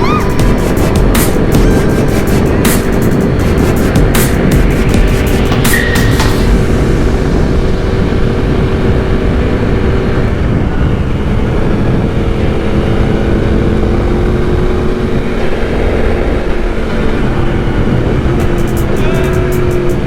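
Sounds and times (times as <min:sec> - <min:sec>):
motorcycle engine running: 0:00.0 - 0:20.0
wind rush on microphone: 0:00.0 - 0:20.0.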